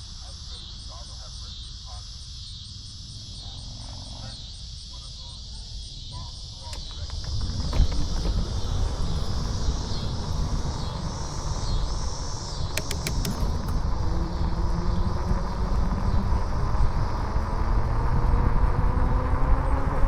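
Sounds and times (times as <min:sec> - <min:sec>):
insects chirring: 0:00.0 - 0:20.0
sharp clicks: 0:06.4 - 0:14.5
wind rumbling on microphone: 0:06.4 - 0:20.0.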